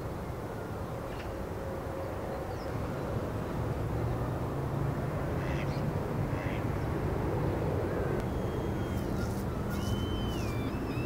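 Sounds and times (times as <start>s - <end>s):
harsh bird calls: 8.2s - 11.0s
high whistled bird notes: 8.2s - 11.0s.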